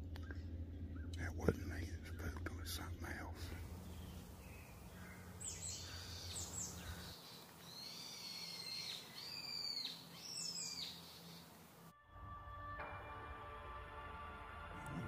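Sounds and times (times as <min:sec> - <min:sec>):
bird calling sharply: 0:03.5 - 0:11.8
music: 0:11.9 - 0:15.0.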